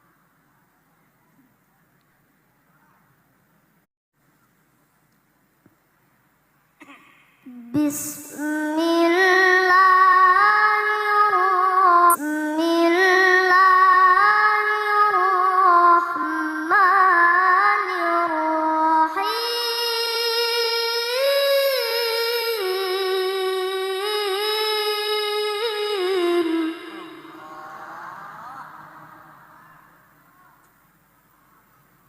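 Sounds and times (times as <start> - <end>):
child chanting recitation: 7.5 - 30.6.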